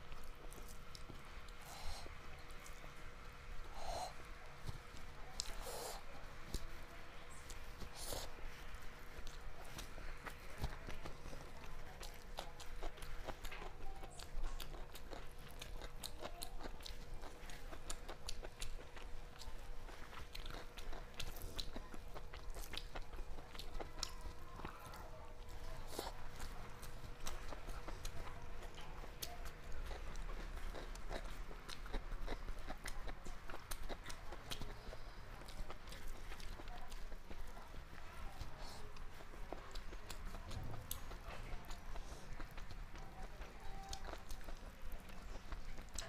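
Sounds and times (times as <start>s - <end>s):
close-up chewing: 0.0s - 46.0s.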